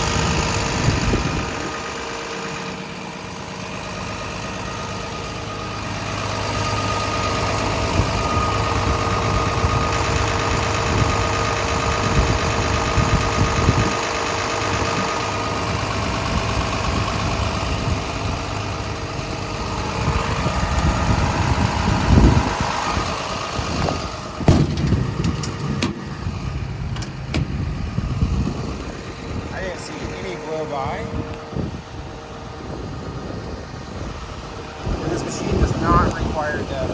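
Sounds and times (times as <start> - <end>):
excavator diesel engine idling: 0.0 - 36.9
sharp knocks: 24.5 - 26.1.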